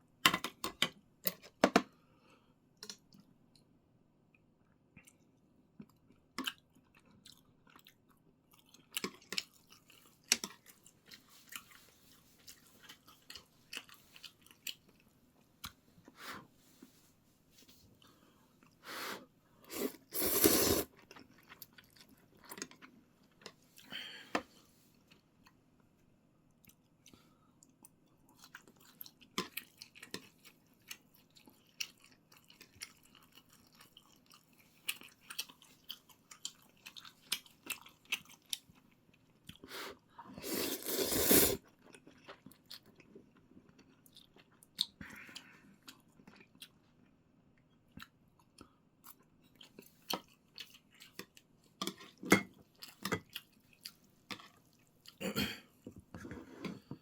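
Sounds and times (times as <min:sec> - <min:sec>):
chewing and mouth smacks: 0:04.3 - 0:15.8, 0:26.6 - 0:39.6, 0:41.6 - 0:55.2.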